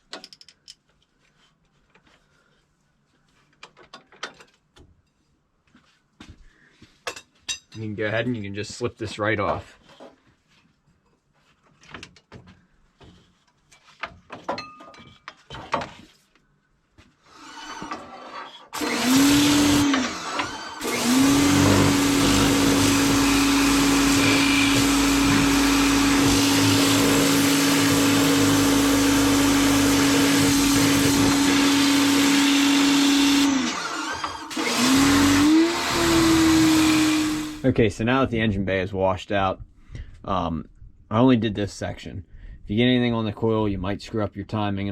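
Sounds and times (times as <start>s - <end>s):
faint clicks and handling noise: 3.1s - 4.9s
pressure washer spraying water: 18.8s - 37.6s.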